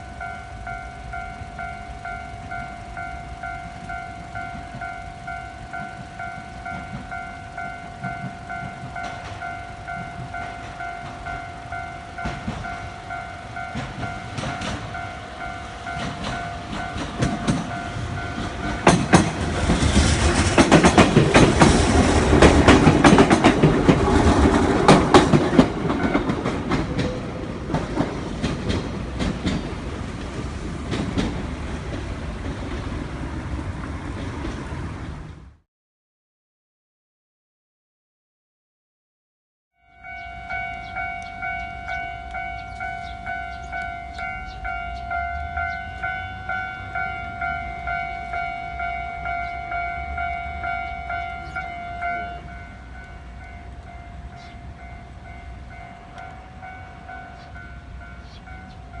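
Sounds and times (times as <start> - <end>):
level crossing bell ringing: 0.0 - 19.4, 39.8 - 59.0
train wheels clattering: 0.0 - 34.8.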